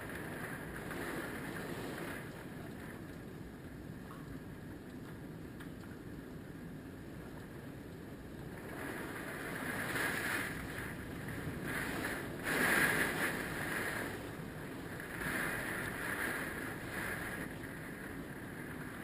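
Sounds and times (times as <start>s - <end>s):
wind gusting: 8.5s - 19.0s.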